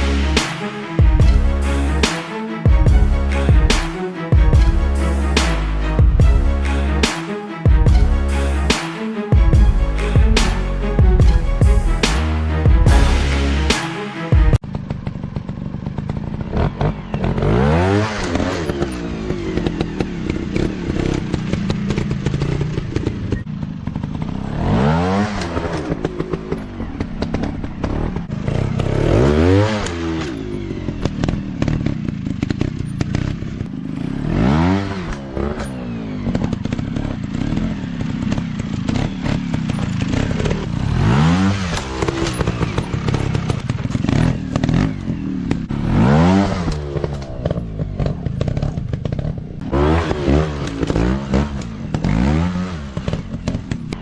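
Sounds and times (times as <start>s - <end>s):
dirt bike engine revving: 14.6s - 54.0s.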